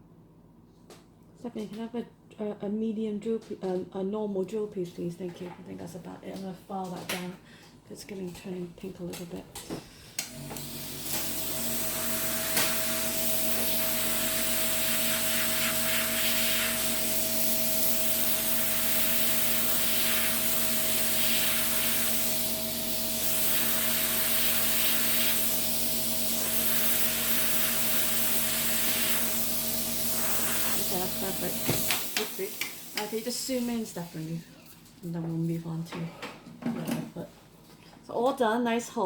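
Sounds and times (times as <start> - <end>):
drill humming: 10.2 - 33.7.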